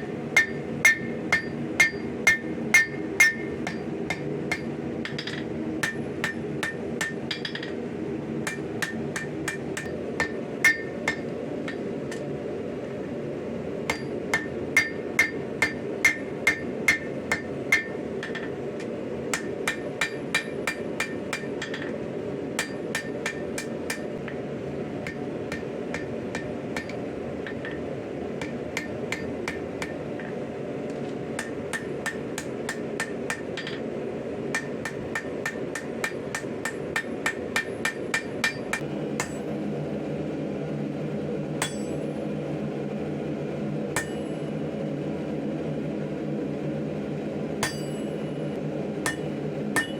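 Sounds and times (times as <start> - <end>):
steady background noise: 0.0 - 49.9
hammer striking steel on anvil: 0.3 - 12.2, 13.9 - 18.6, 19.3 - 22.0, 22.6 - 24.4, 25.0 - 30.4, 31.4 - 33.9, 34.5 - 39.5, 41.6 - 42.2, 44.0 - 44.6, 47.6 - 49.9.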